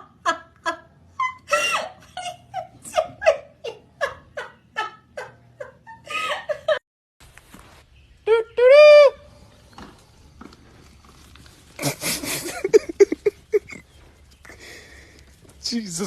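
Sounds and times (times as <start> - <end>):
person laughing hard: 0.2 - 6.8, 11.8 - 13.9.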